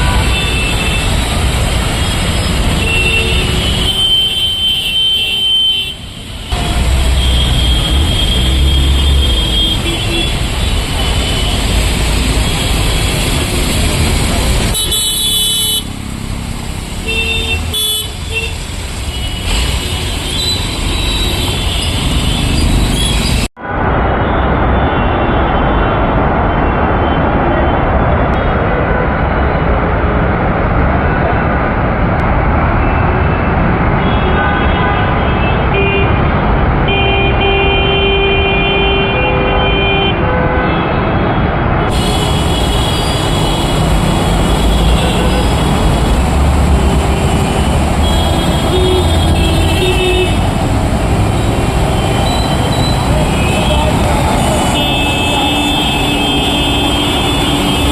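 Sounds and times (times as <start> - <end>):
traffic rumble: 0.0 - 57.9
car horns honking: 41.9 - 50.5, 51.4 - 57.9.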